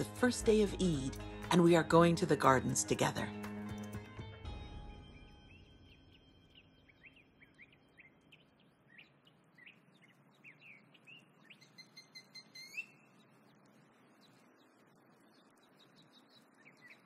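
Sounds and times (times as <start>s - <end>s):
birds chirping: 4.9s - 17.0s
light hiss: 8.5s - 17.0s.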